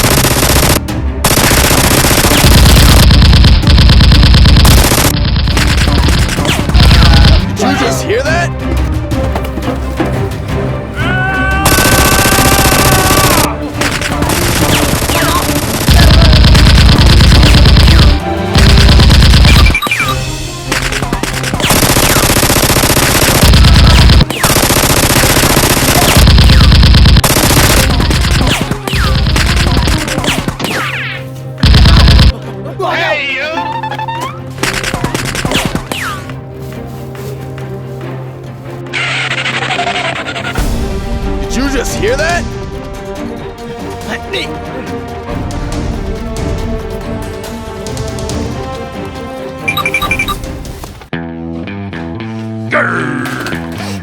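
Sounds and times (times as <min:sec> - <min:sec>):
automatic gunfire bursts: 0:00.0 - 0:07.4, 0:11.7 - 0:19.9, 0:21.2 - 0:30.6
machine-gun fire: 0:00.0 - 0:07.4, 0:11.6 - 0:19.9, 0:20.9 - 0:30.6, 0:31.6 - 0:32.3.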